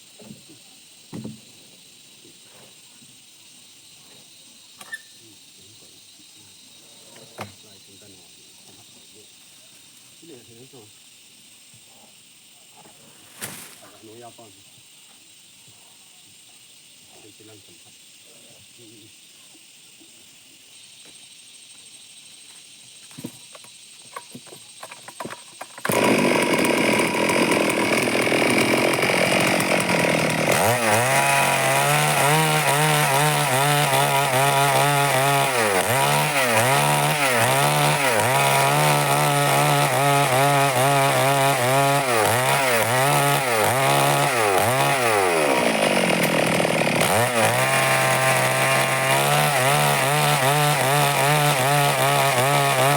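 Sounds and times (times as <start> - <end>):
chainsaw cutting wood: 24.2 - 52.9.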